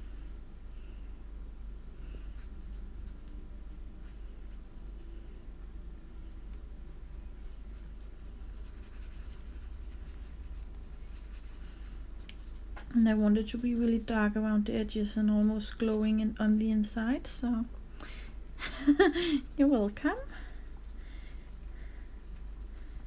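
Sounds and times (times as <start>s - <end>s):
paintbrush brushing across paper: 6.7s - 14.1s, 20.5s - 23.0s.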